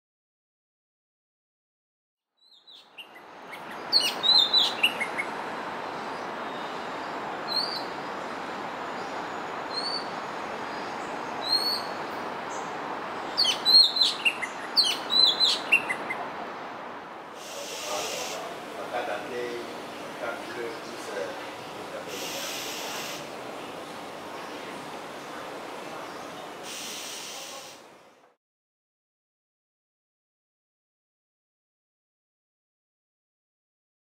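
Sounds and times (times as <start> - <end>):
bird singing whistled notes: 2.4 - 5.3, 7.5 - 7.9, 9.7 - 10.1, 13.3 - 16.2
steady background noise: 2.8 - 28.4.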